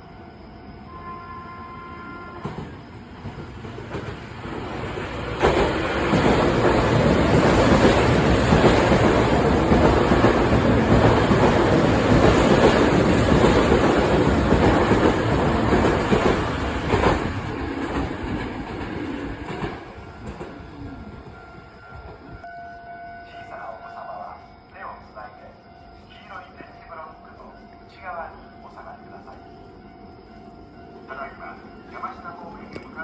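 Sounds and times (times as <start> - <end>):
train wheels rushing on rails: 2.2 - 22.4.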